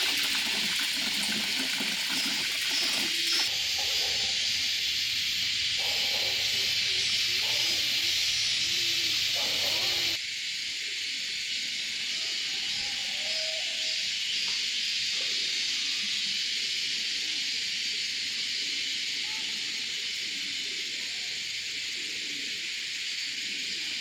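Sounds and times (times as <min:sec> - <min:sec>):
high-pitched hiss: 0:01.0 - 0:24.0.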